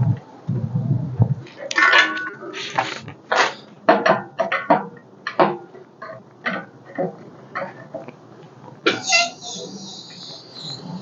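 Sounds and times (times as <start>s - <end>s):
metallic knocks and creaks: 1.2s - 8.1s.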